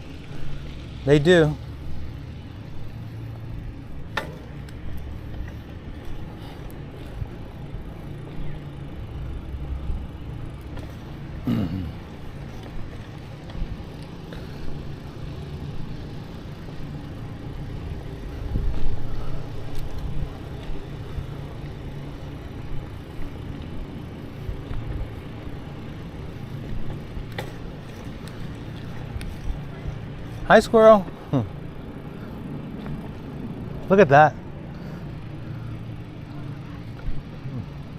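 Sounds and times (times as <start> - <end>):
wind rumble on microphone: 17.8 - 21.4.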